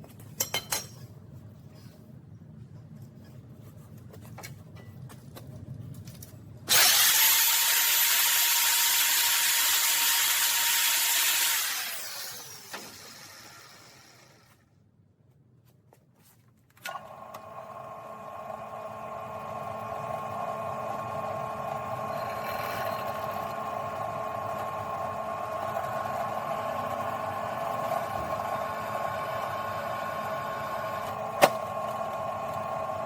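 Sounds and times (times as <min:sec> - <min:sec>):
power tool whining: 0:06.7 - 0:14.5
machine hum: 0:16.9 - 0:33.0.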